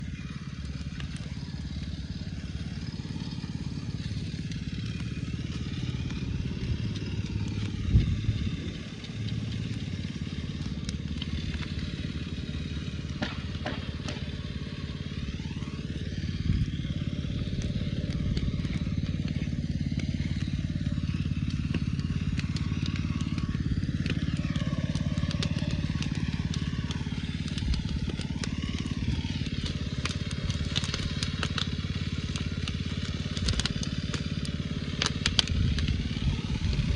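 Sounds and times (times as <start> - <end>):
truck engine running: 0.0 - 36.9.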